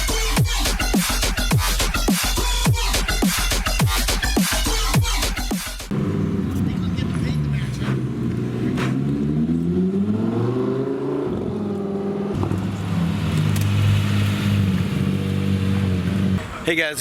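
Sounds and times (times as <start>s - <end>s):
car engine accelerating: 5.8s - 17.0s.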